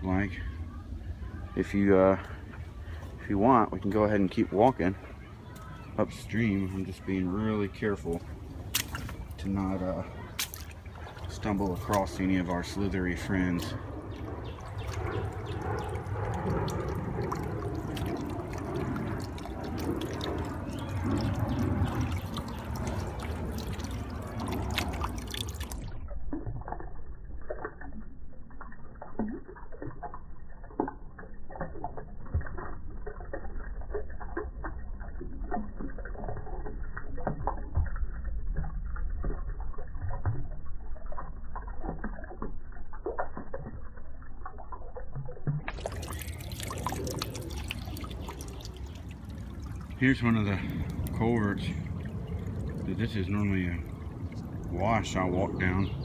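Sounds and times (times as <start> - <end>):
floodwater rushing in creek: 0.0 - 56.0.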